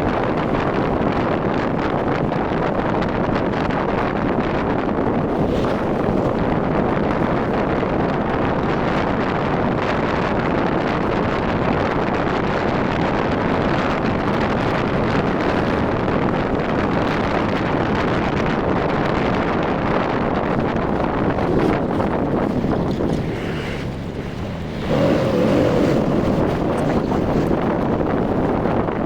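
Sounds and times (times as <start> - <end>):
wind buffeting microphone: 0.0 - 29.0
road and engine noise: 19.8 - 29.0.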